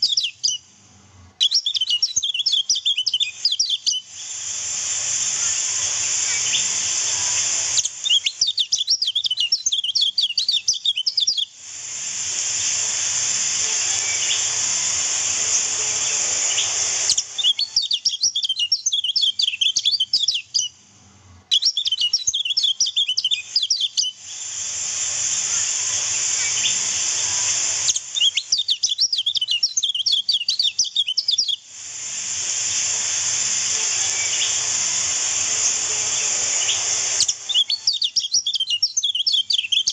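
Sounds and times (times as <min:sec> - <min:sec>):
bird chirping rapidly: 0:00.0 - 0:00.7, 0:01.4 - 0:04.4, 0:06.0 - 0:11.5, 0:13.8 - 0:14.7, 0:15.3 - 0:20.8, 0:21.5 - 0:24.2, 0:25.4 - 0:31.6, 0:33.9 - 0:39.9
running water hiss: 0:00.0 - 0:20.7, 0:21.5 - 0:39.9.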